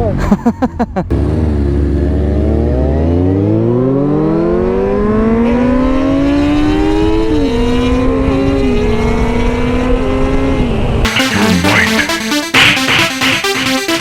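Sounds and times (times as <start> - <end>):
motorcycle engine accelerating: 1.1 - 11.0.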